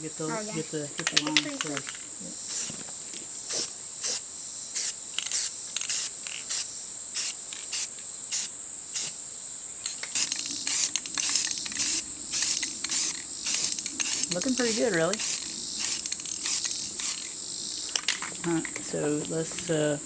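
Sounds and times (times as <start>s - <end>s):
spray paint can hissing: 2.4s - 2.8s, 3.5s - 9.2s, 9.8s - 17.4s.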